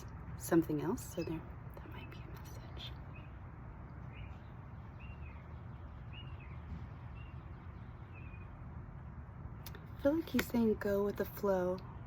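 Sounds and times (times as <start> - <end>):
bird chirping: 0.7 - 8.8.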